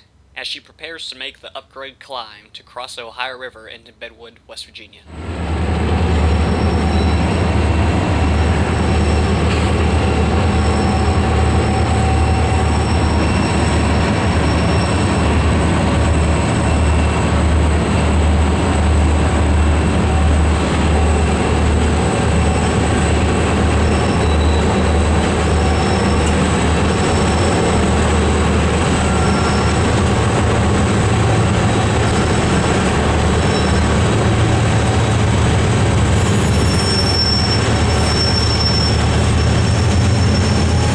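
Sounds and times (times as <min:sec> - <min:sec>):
diesel locomotive rumble: 0:05.1 - 0:40.9
rolling train cars: 0:05.1 - 0:40.9
high-pitched wheel squeals: 0:06.4 - 0:15.4, 0:23.8 - 0:27.8, 0:28.9 - 0:30.0, 0:33.4 - 0:34.0, 0:36.1 - 0:40.9.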